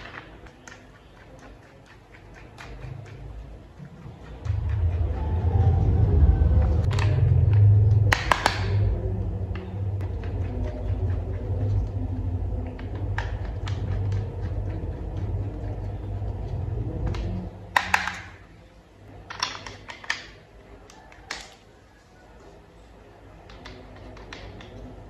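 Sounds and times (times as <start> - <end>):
low steady hum: 0.0 - 21.1
plastic toy parts clicking: 19.2 - 21.6.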